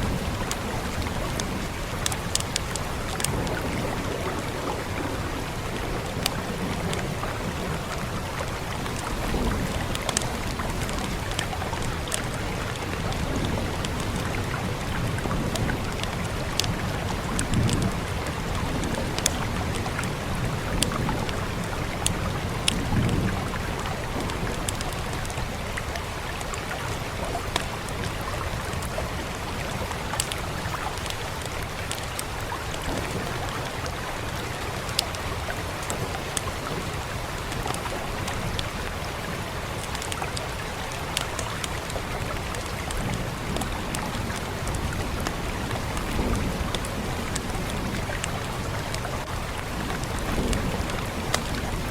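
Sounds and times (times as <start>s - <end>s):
wood fire crackling: 0.0s - 20.2s
rain hiss: 0.0s - 51.9s.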